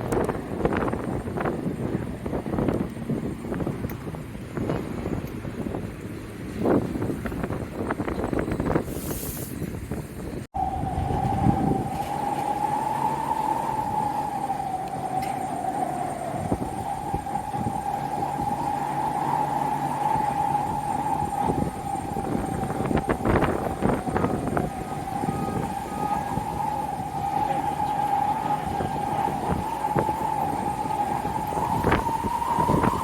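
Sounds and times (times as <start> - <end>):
wind buffeting microphone: 0.0 - 33.0
high wavering whine: 10.6 - 33.0.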